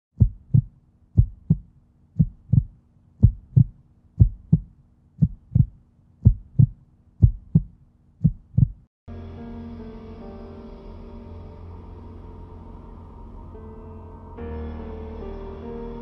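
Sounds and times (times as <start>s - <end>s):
heartbeat thumps: 0.2s - 8.9s.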